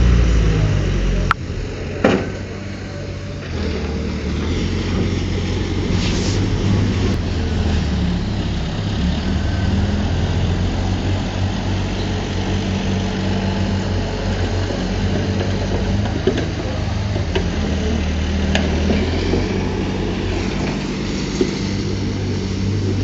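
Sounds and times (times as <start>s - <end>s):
diesel engine droning: 0.0s - 23.0s
brief hiss: 5.9s - 6.5s.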